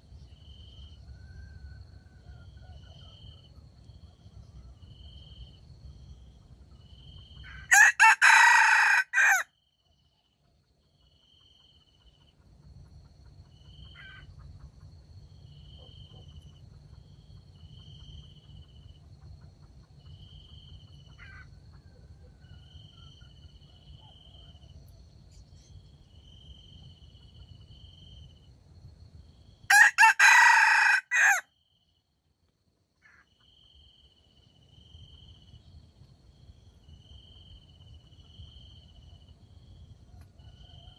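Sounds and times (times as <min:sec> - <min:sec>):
crickets chirping: 0:00.0 - 0:40.9
rooster crowing: 0:07.4 - 0:09.5, 0:29.7 - 0:31.5, 0:40.3 - 0:40.9.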